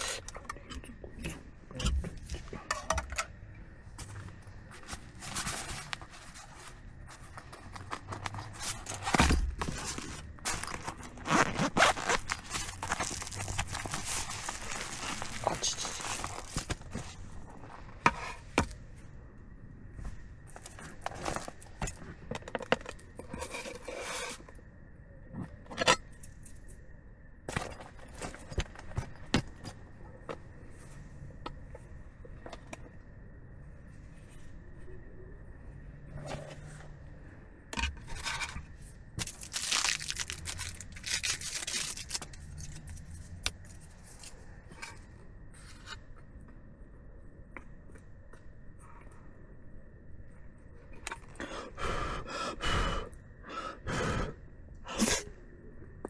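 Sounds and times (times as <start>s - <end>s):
objects clinking and knocking: 4.0s - 17.4s, 27.5s - 29.8s, 39.2s - 44.3s
rustling: 4.0s - 18.6s, 39.2s - 44.4s.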